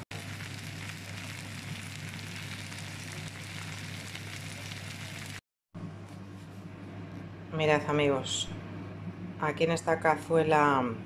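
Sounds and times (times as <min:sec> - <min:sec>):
vegetables sizzling in a frying pan: 0:00.0 - 0:05.4
low steady hum: 0:00.2 - 0:11.0.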